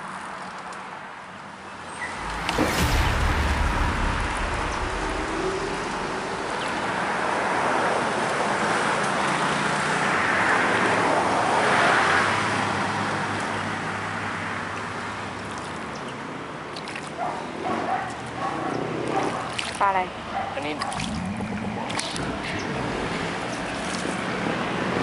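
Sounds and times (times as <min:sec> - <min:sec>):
low rumble: 0:02.0 - 0:07.9
road traffic passing: 0:20.0 - 0:25.0.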